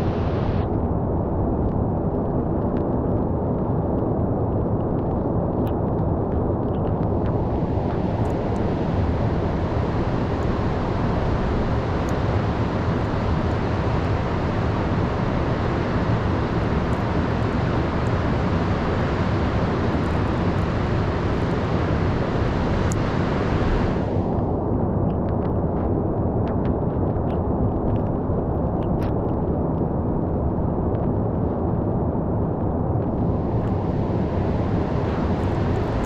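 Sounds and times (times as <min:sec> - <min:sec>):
heavy surf: 0:07.3 - 0:24.4, 0:33.2 - 0:36.0.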